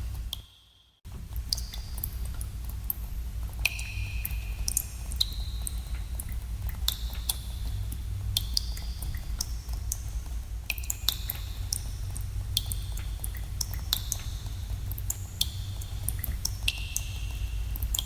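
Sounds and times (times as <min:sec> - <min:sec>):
steady low rumble: 0:01.1 - 0:18.0
water drops plinking into pool: 0:03.6 - 0:07.4.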